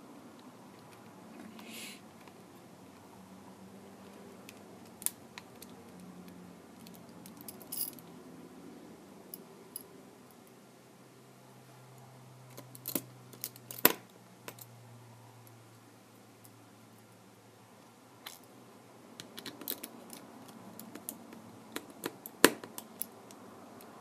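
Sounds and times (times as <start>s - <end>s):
tools clicking and clinking: 12.5s - 14.7s, 19.2s - 23.4s.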